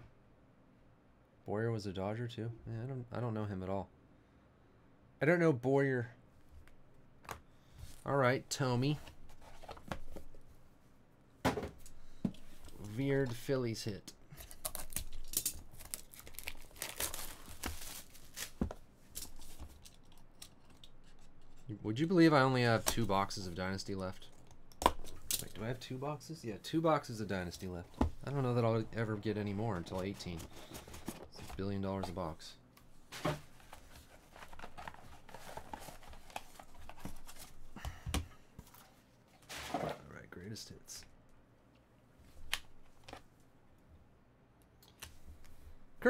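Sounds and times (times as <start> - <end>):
cards and packaging clicks and rustles: 11.8 - 25.8, 27.1 - 32.4, 33.1 - 40.0
packaging crinkling and tearing: 14.3 - 18.6.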